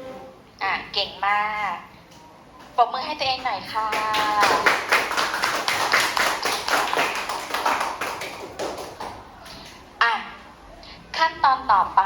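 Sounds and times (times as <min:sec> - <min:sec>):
students clapping: 0:03.8 - 0:09.3.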